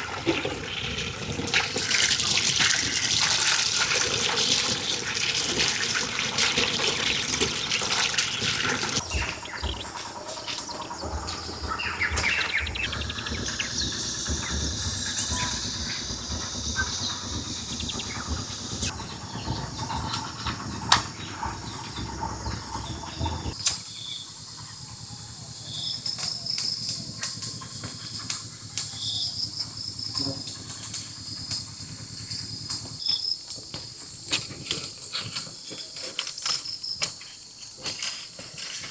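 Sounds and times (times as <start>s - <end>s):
water running: 0.0s - 23.6s
insects chirping: 0.0s - 38.9s
low rumble: 9.0s - 23.6s.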